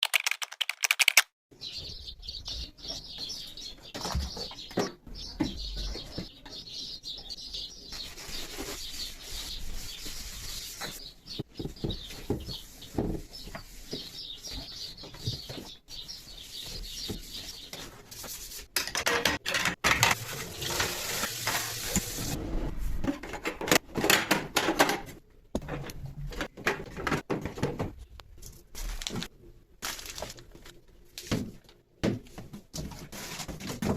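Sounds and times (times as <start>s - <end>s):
scrubbing and wiping: 8.0s - 18.7s
containers and shelves clinking: 18.7s - 22.4s, 23.0s - 28.0s.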